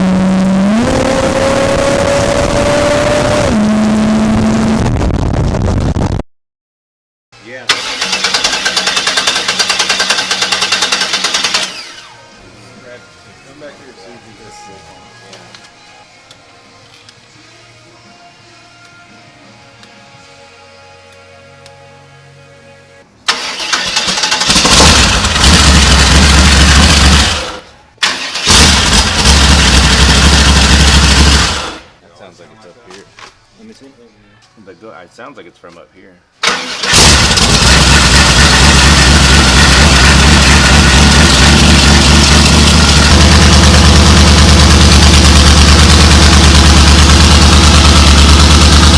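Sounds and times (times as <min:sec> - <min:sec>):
engine running at high revs: 0:00.0 - 0:06.1, 0:24.5 - 0:27.6, 0:28.5 - 0:31.8, 0:36.9 - 0:48.9.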